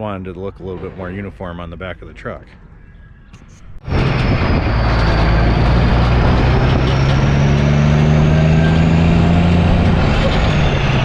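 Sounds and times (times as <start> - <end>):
diesel truck engine running: 3.8 - 11.0.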